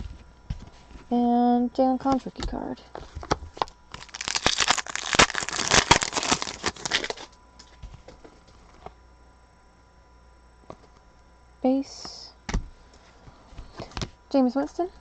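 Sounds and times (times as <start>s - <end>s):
plastic packaging crinkling: 2.9s - 8.1s.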